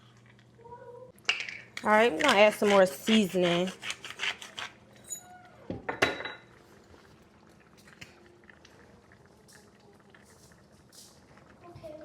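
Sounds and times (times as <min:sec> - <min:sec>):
cookware clinking: 0:05.0 - 0:06.5.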